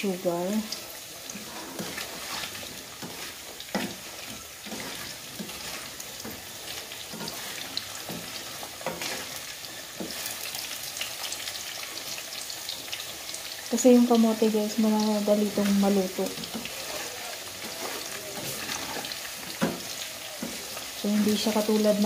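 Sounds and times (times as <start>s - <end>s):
potatoes sizzling in hot oil: 0.0s - 22.0s
wooden spatula knocking on pan: 8.0s - 9.0s, 19.5s - 20.6s.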